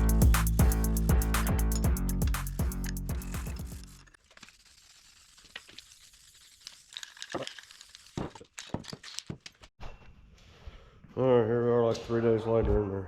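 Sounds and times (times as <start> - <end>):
background music: 0.0 - 4.0.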